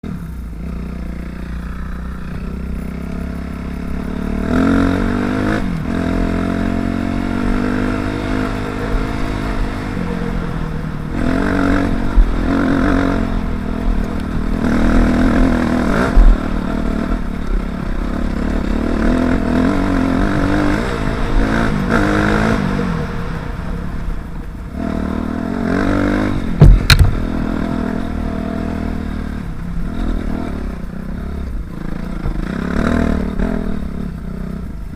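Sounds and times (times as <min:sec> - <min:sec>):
dirt bike engine revving: 0:00.1 - 0:24.1, 0:24.7 - 0:34.7
wind rumble on microphone: 0:26.2 - 0:28.0
sharp knocks: 0:26.6 - 0:27.4.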